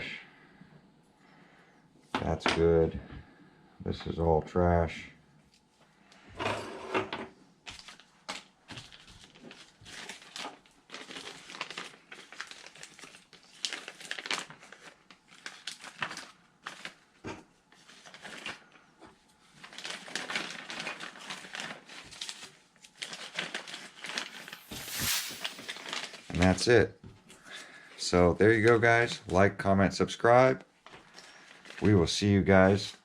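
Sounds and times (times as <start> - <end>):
plastic packaging crinkling: 8.9 - 17.0, 19.6 - 24.6.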